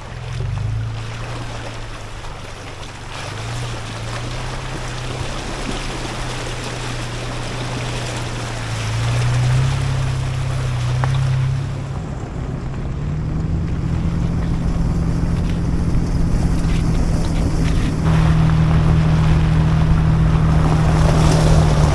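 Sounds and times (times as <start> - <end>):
car engine running at low revs: 0.0 - 21.9
steady rushing noise: 5.2 - 21.9.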